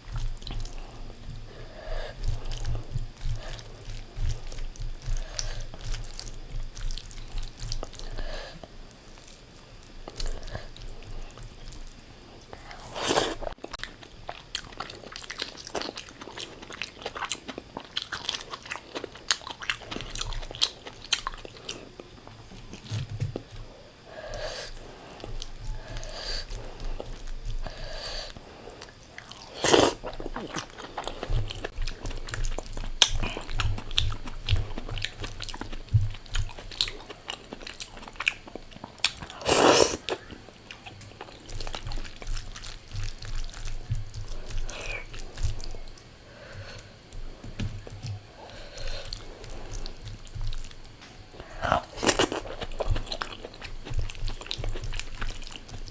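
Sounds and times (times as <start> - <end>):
person chewing food: 0.0 - 55.9
crunchy bites: 47.8 - 55.9.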